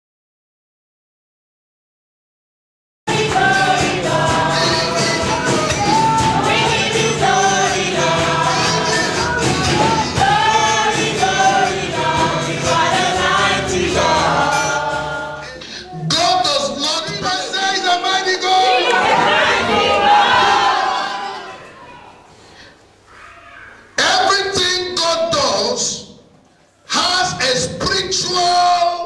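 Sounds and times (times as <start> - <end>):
steady percussive beat: 3.1 - 15.4
instrumental accompaniment: 3.1 - 16.1
gospel choir singing: 3.1 - 21.8.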